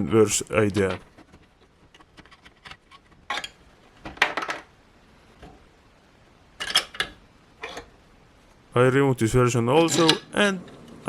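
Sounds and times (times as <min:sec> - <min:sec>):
plastic parts clicking and clattering: 0:00.8 - 0:04.7, 0:06.6 - 0:07.9, 0:09.8 - 0:10.8.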